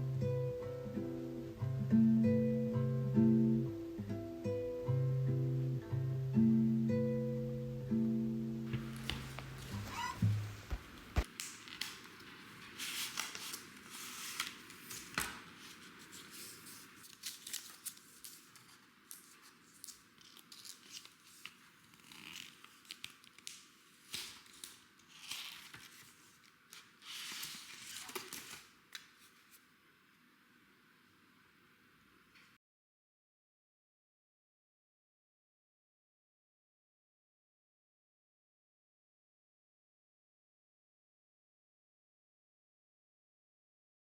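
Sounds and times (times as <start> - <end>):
packaging tearing and rustling: 8.8 - 29.6.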